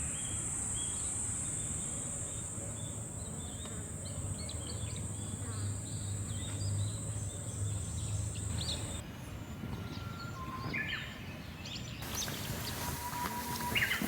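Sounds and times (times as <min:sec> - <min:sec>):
high steady hiss-like tone: 0:00.0 - 0:05.0, 0:12.0 - 0:14.0
outdoor ambience: 0:00.0 - 0:14.0
small birds chirping: 0:02.8 - 0:09.0, 0:10.7 - 0:14.0.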